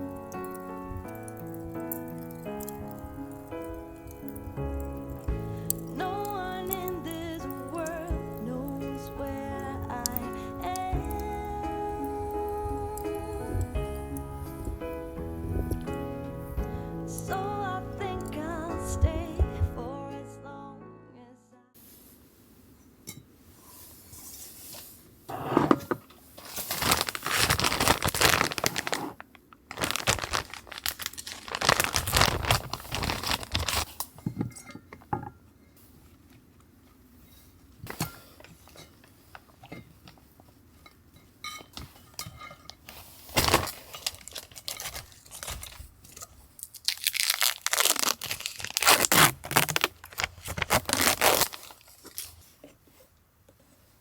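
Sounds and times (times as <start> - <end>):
rustling crinkling and tearing: 0.0 - 17.4, 26.1 - 34.2, 41.8 - 53.2.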